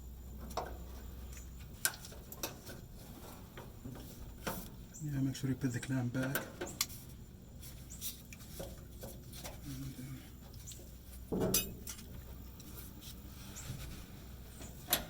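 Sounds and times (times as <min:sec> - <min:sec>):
metal clinks of tools: 0:11.4 - 0:12.0.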